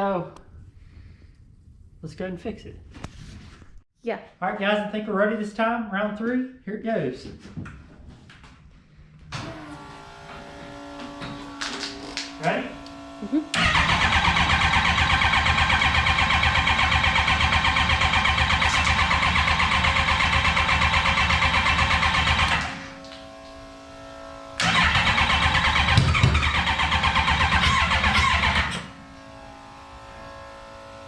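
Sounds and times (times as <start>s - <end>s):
engine cranking on starter: 12.2s - 22.9s, 24.6s - 29.0s.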